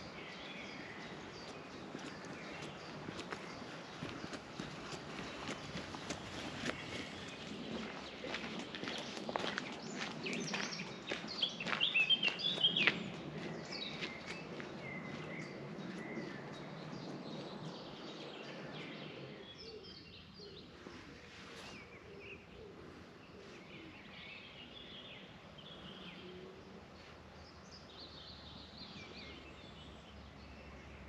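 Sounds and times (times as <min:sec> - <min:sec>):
faint outdoor background noise: 0:00.0 - 0:31.0
songbirds chirping and warbling: 0:00.0 - 0:31.0.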